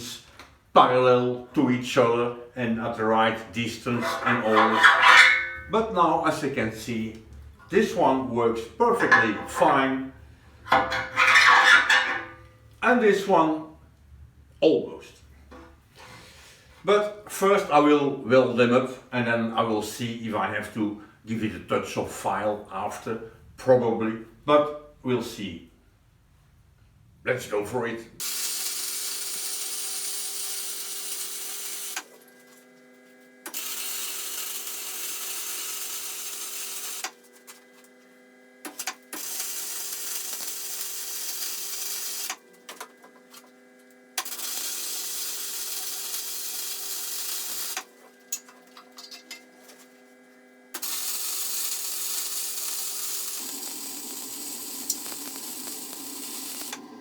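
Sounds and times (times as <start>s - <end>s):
welding arc crackling and hissing: 28.2s - 32.0s, 33.5s - 37.1s, 38.7s - 42.4s, 44.2s - 48.5s, 50.8s - 57.0s
steady hum: 53.0s - 57.0s.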